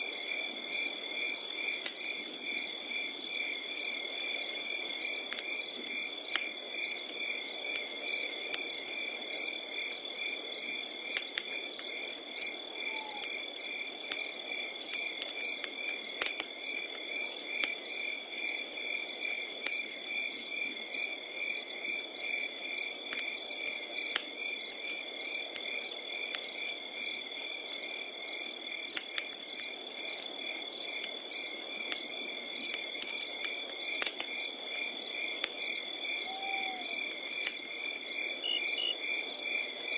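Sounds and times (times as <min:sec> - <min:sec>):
insects chirping: 0:00.0 - 0:39.9
wood fire crackling: 0:00.0 - 0:39.9.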